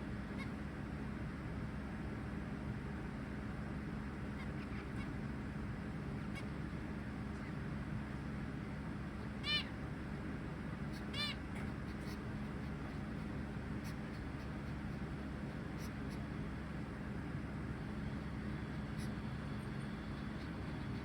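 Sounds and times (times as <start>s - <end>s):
steady low hum: 0.0s - 21.0s
finch calls: 0.1s - 0.7s, 4.2s - 21.0s.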